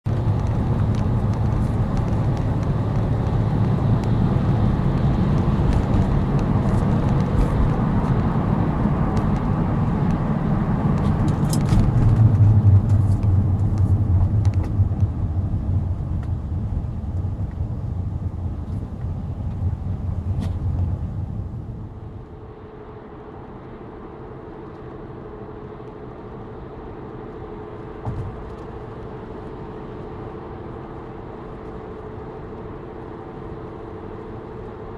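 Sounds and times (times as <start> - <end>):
tyre rumble on the road: 0.1 - 22.5, 25.7 - 34.9.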